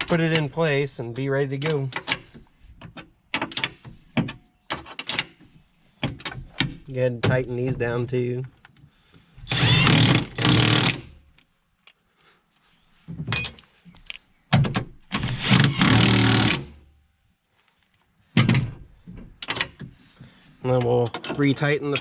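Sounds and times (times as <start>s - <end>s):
impact wrench bursts: 9.4s - 11.2s, 15.1s - 16.8s.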